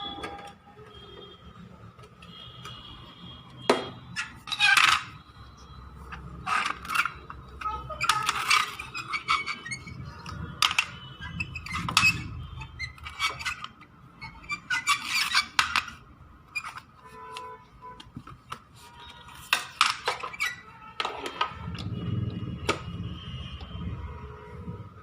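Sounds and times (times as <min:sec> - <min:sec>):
plastic parts clicking and clattering: 0:03.7 - 0:05.2, 0:06.1 - 0:13.9, 0:14.6 - 0:18.6, 0:19.3 - 0:22.0, 0:22.6 - 0:23.0.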